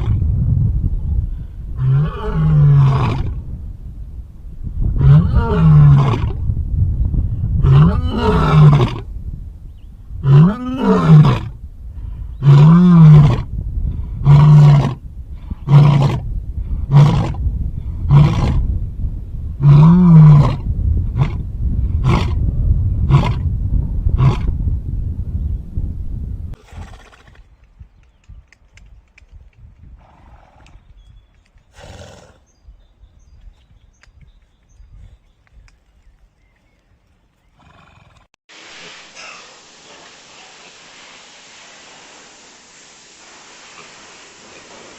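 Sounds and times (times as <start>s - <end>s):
big cat roaring: 7.6s - 9.1s, 12.4s - 13.5s.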